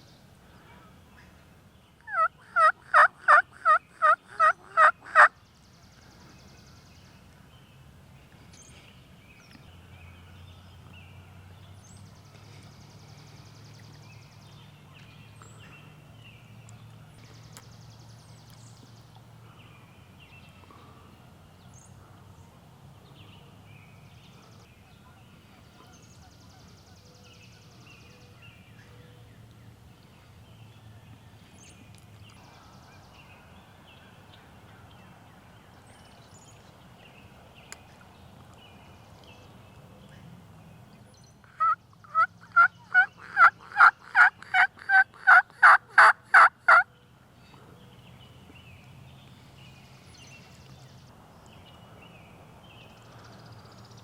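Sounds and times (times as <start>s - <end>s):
wild turkey yelps: 2.1s - 5.3s, 41.5s - 46.8s.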